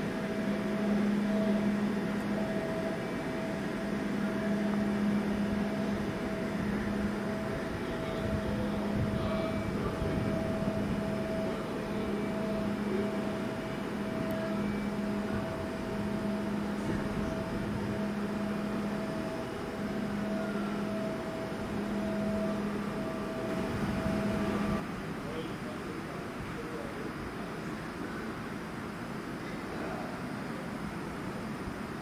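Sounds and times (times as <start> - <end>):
train electrical hum: 0.0 - 32.0
wind rumbling on microphone: 1.3 - 25.2.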